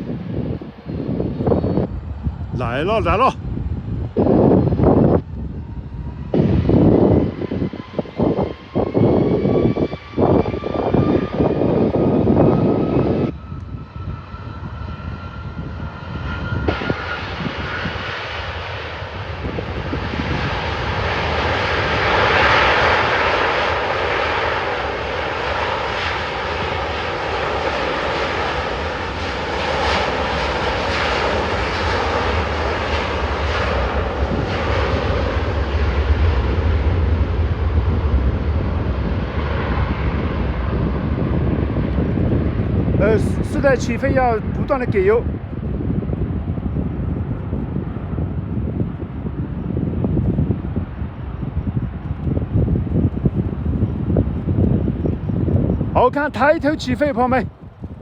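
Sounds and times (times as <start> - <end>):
jet engines whining: 0.0 - 45.4, 56.0 - 57.6
broad steady roar: 0.0 - 58.0
deep rumble: 0.6 - 2.6, 33.3 - 43.6.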